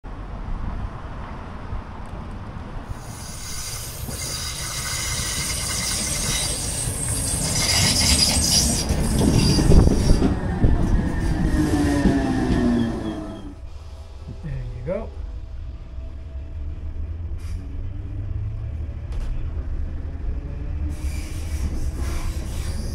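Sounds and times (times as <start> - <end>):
electric train wheels on rail: 0.2 - 22.9
high wheel squeal: 2.9 - 13.7, 20.9 - 22.9
falling train whine: 2.9 - 22.9.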